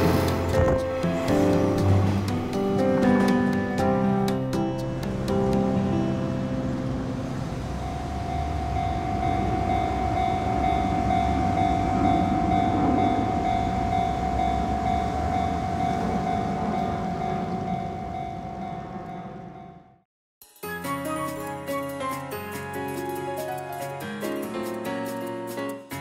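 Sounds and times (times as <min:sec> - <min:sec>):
electric train rumbling along track: 0:00.0 - 0:20.0
steady high tone: 0:07.5 - 0:19.8.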